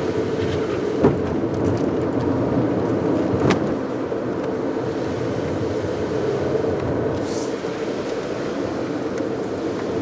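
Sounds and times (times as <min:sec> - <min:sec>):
car engine hum: 0:00.0 - 0:10.0
tyres hissing on wet road: 0:03.8 - 0:10.0.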